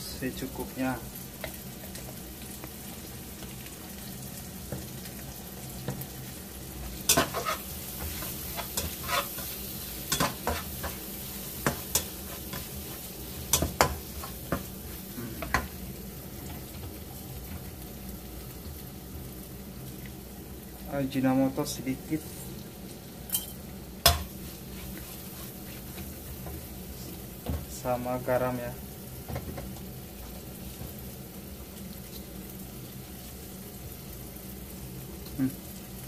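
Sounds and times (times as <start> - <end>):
paste sizzling in hot oil: 0.0 - 36.0
utensil scraping a pan: 7.1 - 15.7, 24.1 - 26.2.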